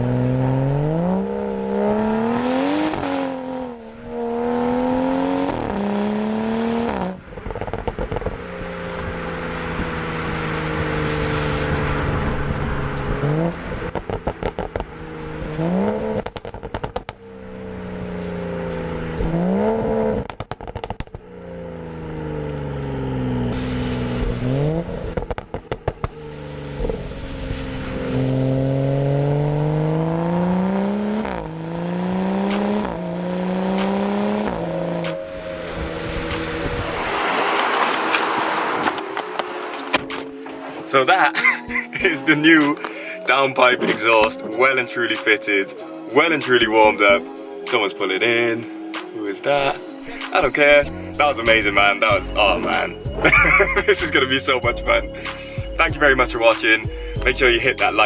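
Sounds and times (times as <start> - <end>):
car engine revving: 0.0 - 58.0
exhaust crackles and pops: 5.3 - 5.8, 6.8 - 28.4, 32.2 - 45.4.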